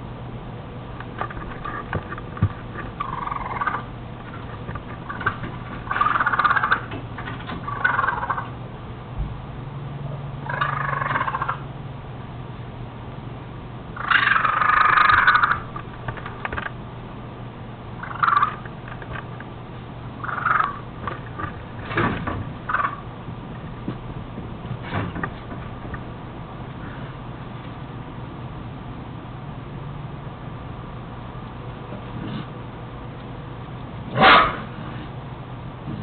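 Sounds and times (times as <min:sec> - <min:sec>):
low steady hum: 0:00.0 - 0:36.0
animal calls: 0:02.8 - 0:07.0, 0:07.6 - 0:08.5, 0:10.0 - 0:11.7, 0:14.0 - 0:16.6, 0:18.0 - 0:19.3, 0:20.2 - 0:21.8, 0:22.6 - 0:23.1, 0:34.1 - 0:35.0.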